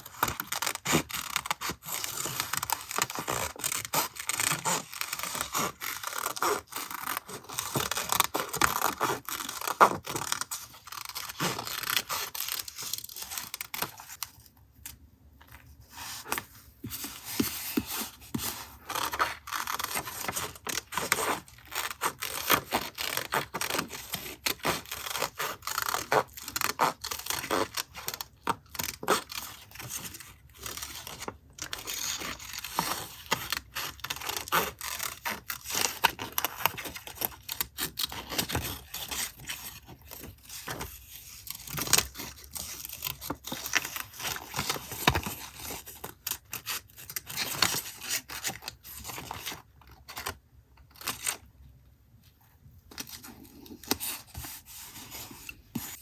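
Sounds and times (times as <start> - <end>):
paper rustling and scraping: 15.4 - 50.4, 52.9 - 56.0.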